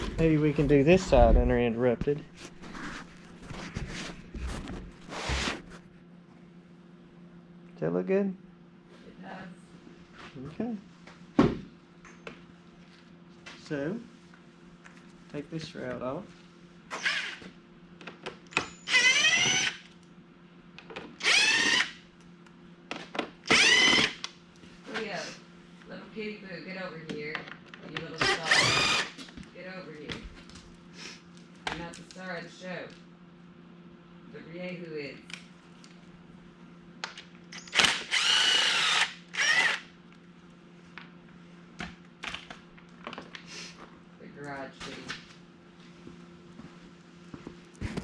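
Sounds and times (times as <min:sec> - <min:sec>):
power drill-driver whirring: 0:17.0 - 0:17.4, 0:18.8 - 0:19.9, 0:21.2 - 0:22.0, 0:23.5 - 0:24.2, 0:28.2 - 0:29.2, 0:37.6 - 0:39.9.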